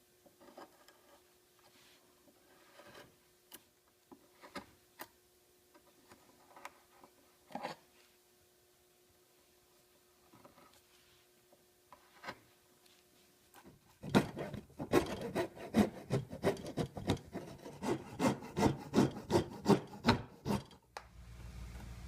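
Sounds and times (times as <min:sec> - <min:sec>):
hand tool scraping wood: 0:14.3 - 0:20.8.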